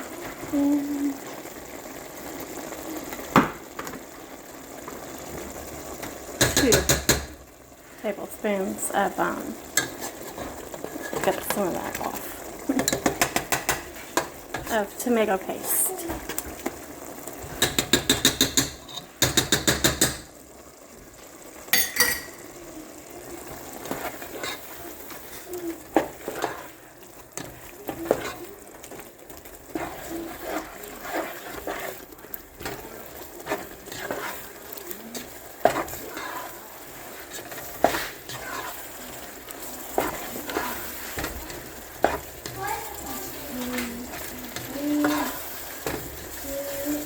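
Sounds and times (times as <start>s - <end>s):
meat and onion sizzling: 0.0s - 47.0s
spoon tapping on a pan: 6.4s - 7.4s, 12.8s - 14.6s, 17.5s - 20.3s, 21.7s - 22.4s
spoon scraping a pan: 8.8s - 16.8s, 17.4s - 20.3s, 21.7s - 22.5s, 23.5s - 47.0s.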